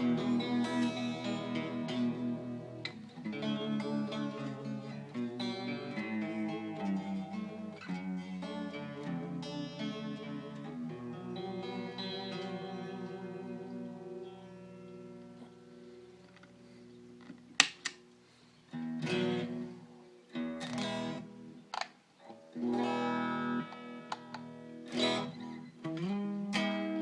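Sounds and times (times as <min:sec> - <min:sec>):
guitar pick attack: 0:00.0 - 0:16.0
electric guitar chords and riffs: 0:00.0 - 0:18.1, 0:18.7 - 0:27.0.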